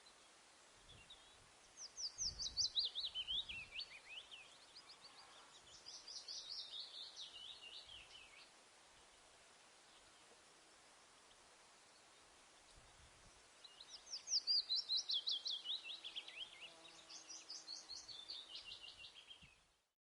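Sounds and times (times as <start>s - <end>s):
faint steady hiss: 0.0s - 20.0s
bird singing quick chirps: 0.9s - 8.5s, 13.6s - 19.6s.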